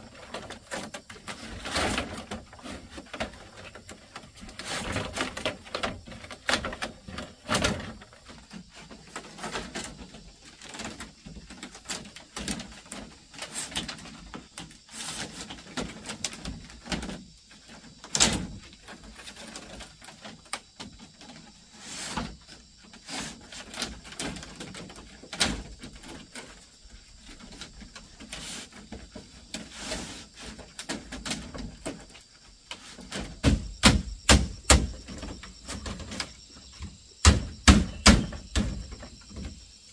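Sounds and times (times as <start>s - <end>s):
bamboo and wood knocking: 27.2s - 39.6s.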